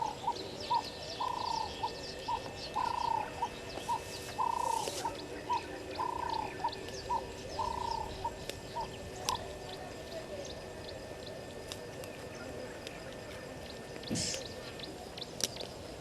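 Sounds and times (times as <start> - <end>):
dove cooing: 0.0 - 10.4
small birds chirping faintly: 0.0 - 16.0.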